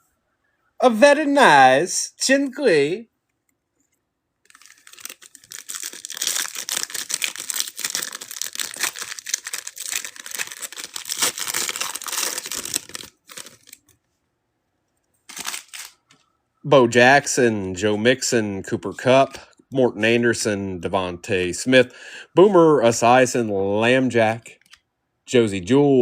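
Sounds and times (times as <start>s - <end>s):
wrapper torn and crinkled: 4.5s - 13.9s, 15.3s - 16.0s.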